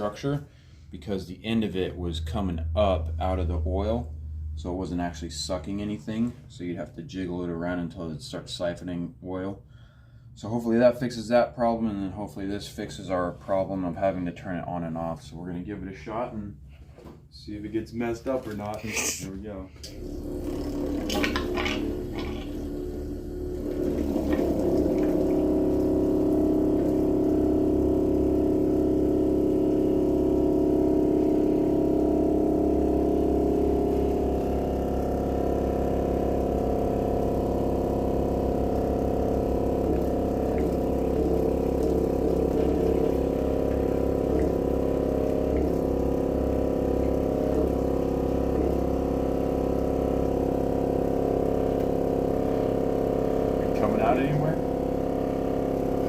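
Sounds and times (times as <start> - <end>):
electric pump humming: 0.0 - 6.2, 18.3 - 56.0.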